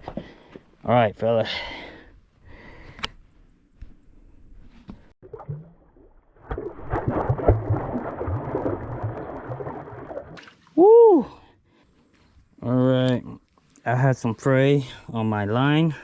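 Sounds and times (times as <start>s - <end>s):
water sloshing and splashing: 5.2s - 10.7s.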